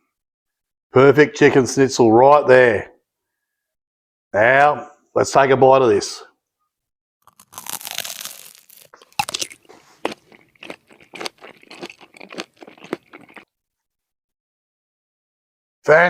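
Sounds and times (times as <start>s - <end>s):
crunchy bite: 7.2s - 13.5s
crunchy chewing: 7.2s - 13.5s.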